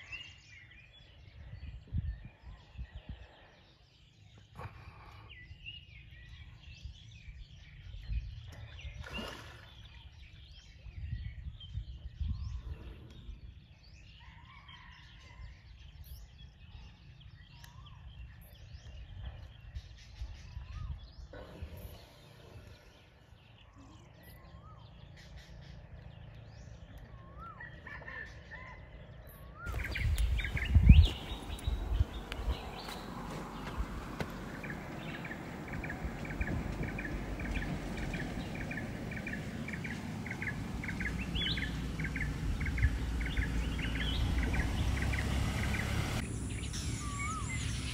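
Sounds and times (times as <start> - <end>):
birds chirping and calling: 0.0 - 47.9
low rumbling noise: 29.7 - 47.9.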